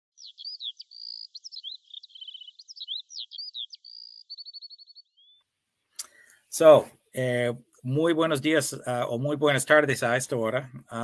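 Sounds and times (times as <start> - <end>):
bird singing whistled trills: 0.2 - 5.4.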